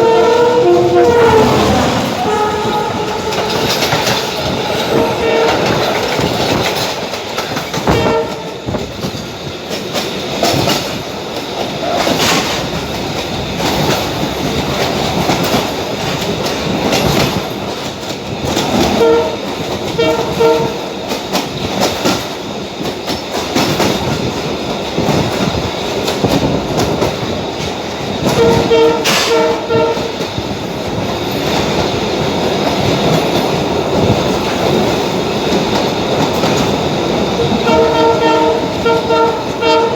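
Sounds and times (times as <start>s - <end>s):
train horn blasts: 0.0s - 6.4s, 7.8s - 8.7s, 18.8s - 20.8s, 28.2s - 30.3s, 37.4s - 39.9s
train rumble: 0.0s - 39.9s
wheels clattering over rail joints: 0.0s - 39.9s.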